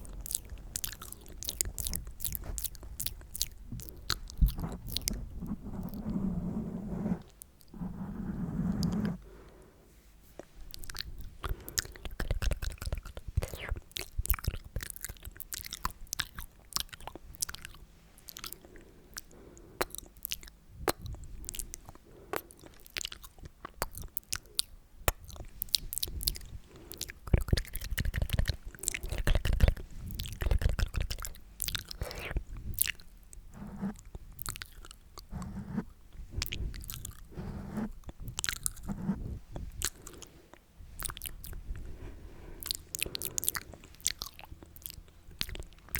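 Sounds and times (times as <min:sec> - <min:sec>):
wet mouth clicks and smacks: 0:00.1 - 0:05.2, 0:10.4 - 0:18.6, 0:19.2 - 0:33.1, 0:42.6 - 0:45.9.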